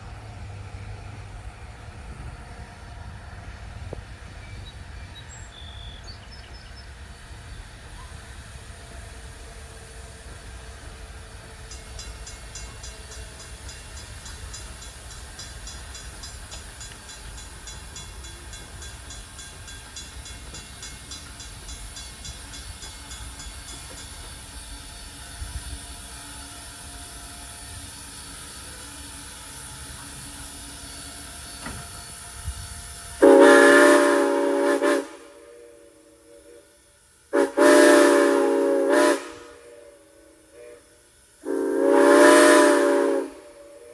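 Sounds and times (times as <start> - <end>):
steam locomotive rumble: 0.0 - 43.9
locomotive whistle blast: 30.0 - 43.9.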